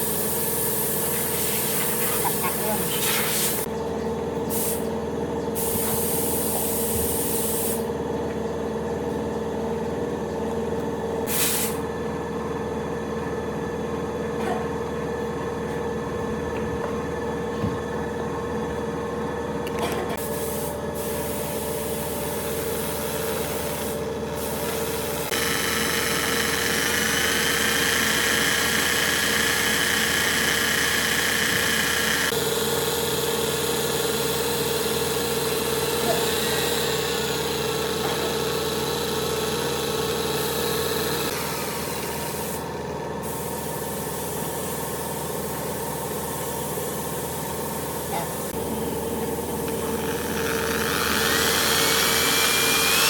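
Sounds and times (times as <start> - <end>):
machine humming: 20.9 - 43.5, 45.8 - 53.0.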